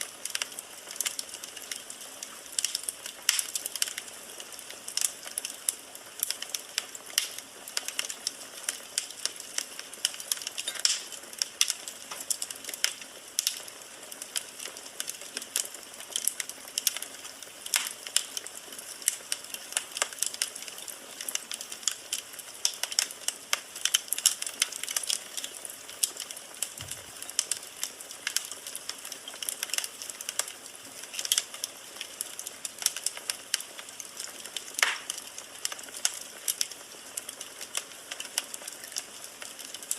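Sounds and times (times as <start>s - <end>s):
firewood crackling: 0.0s - 39.9s.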